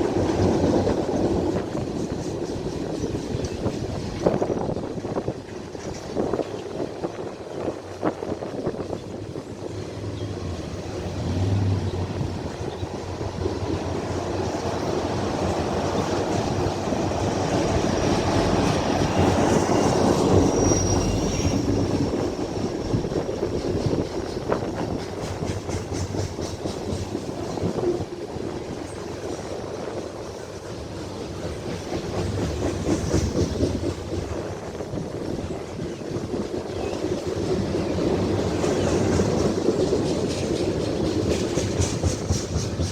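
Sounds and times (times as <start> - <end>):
train wheels clacking on rails: 0.0 - 42.9
high wheel squeal: 19.2 - 22.3.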